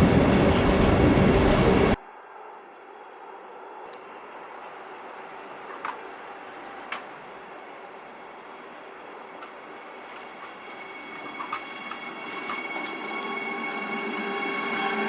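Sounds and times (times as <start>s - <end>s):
train rumbling hiss: 0.0s - 2.0s, 4.7s - 15.0s
sharp metallic clinks: 5.5s - 15.0s.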